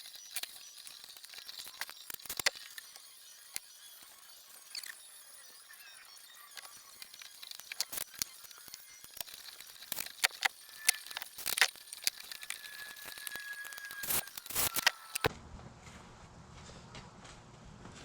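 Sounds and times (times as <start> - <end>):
hard objects clicking and rattling: 6.5 - 15.3.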